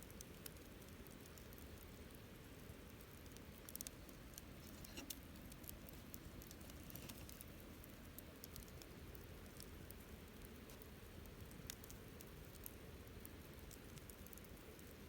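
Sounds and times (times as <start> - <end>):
campfire crackling softly: 0.0 - 15.0.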